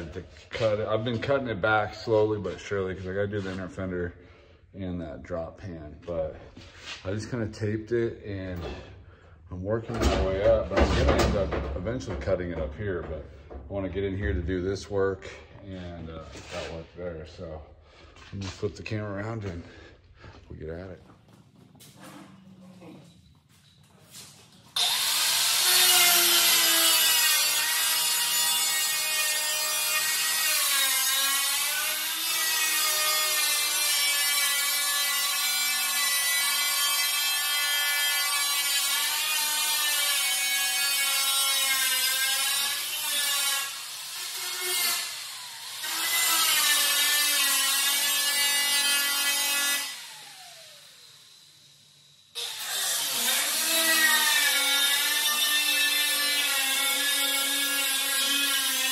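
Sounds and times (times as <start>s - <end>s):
cut-off tool cutting sheet metal: 24.8s - 51.0s, 52.4s - 58.9s.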